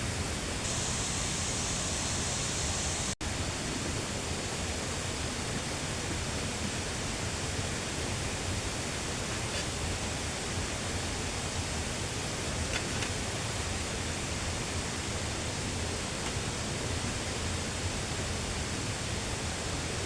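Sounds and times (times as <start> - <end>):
flowing water rushing: 0.6 - 3.2.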